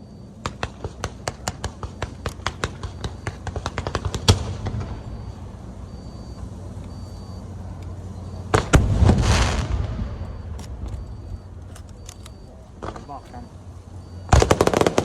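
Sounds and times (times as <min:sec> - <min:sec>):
fireworks bangs: 0:00.4 - 0:05.6, 0:08.5 - 0:11.6, 0:12.8 - 0:13.6, 0:14.2 - 0:15.0
low rumble: 0:04.4 - 0:14.2.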